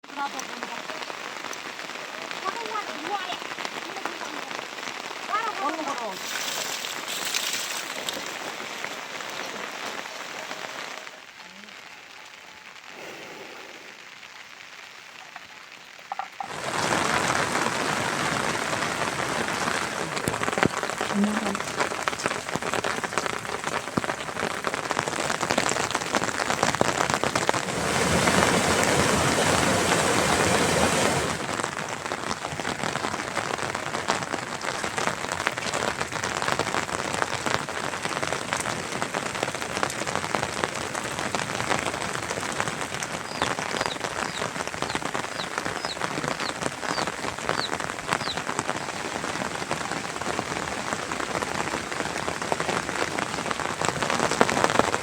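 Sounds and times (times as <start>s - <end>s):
rain drops ticking on surfaces: 0.0s - 55.0s.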